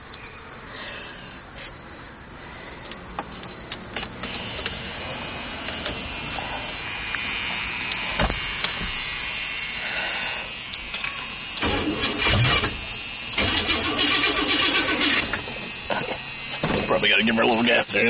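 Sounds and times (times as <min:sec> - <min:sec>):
car engine cranking: 0:10.8 - 0:17.2.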